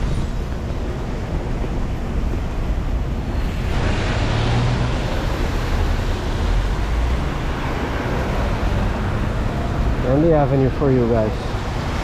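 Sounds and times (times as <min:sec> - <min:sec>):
traffic engine rumble: 0:00.0 - 0:12.0
tyres hissing on wet road: 0:03.0 - 0:12.0.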